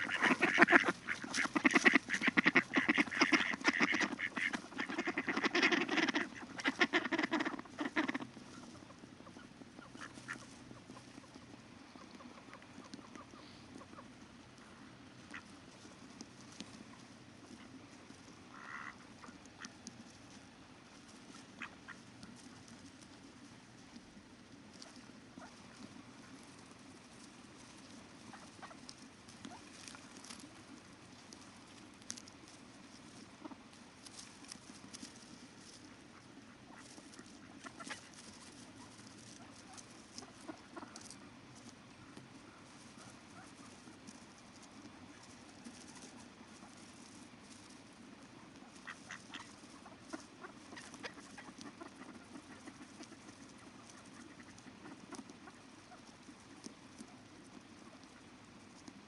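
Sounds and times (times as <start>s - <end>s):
small water ticks and splashes: 0.0s - 8.4s, 9.9s - 47.6s, 48.6s - 59.0s
ducks quacking: 0.0s - 14.2s, 15.2s - 17.9s, 18.5s - 20.1s, 21.2s - 23.4s, 27.8s - 30.8s, 35.8s - 41.2s, 48.6s - 56.6s
faint short duck calls: 0.0s - 15.6s, 18.5s - 19.8s, 48.6s - 56.0s
faint river water flowing: 0.0s - 59.0s.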